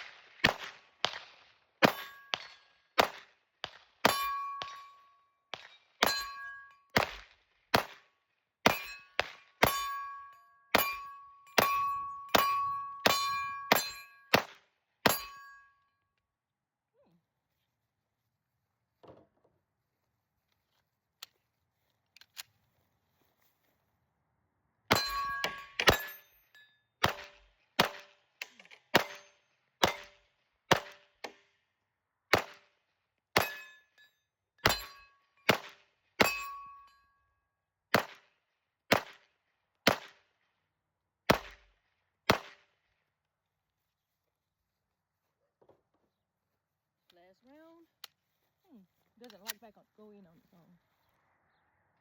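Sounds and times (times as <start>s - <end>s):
pistol shots: 0.0s - 6.4s, 7.0s - 10.0s, 10.8s - 15.4s, 27.0s - 31.4s, 32.3s - 32.7s, 35.5s - 36.4s, 37.9s - 38.2s, 38.9s - 39.2s, 39.8s - 40.2s, 41.3s - 41.7s, 42.3s - 42.6s
metallic ring of steel target: 1.8s - 2.8s, 4.0s - 5.2s, 6.0s - 7.0s, 8.7s - 14.4s, 15.0s - 15.8s, 24.9s - 27.4s, 29.0s - 30.2s, 33.4s - 35.2s, 36.2s - 37.1s.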